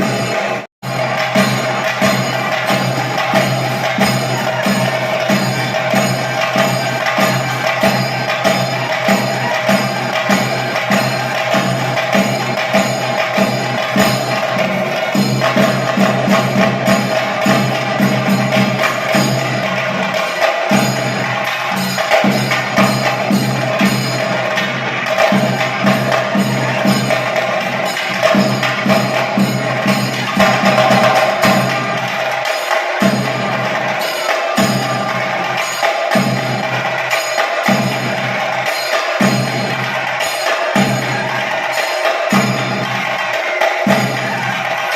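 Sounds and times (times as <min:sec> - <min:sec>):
drums playing fast beat: 0:00.0 - 0:44.9.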